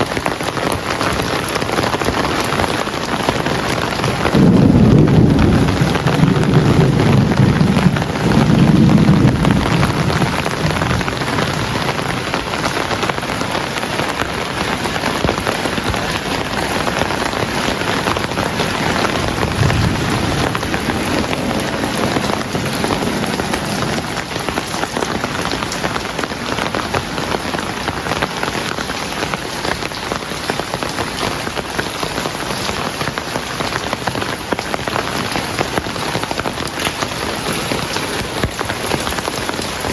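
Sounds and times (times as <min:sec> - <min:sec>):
heavy rain falling: 0:00.0 - 0:39.9
thunder rumbling: 0:03.3 - 0:30.0.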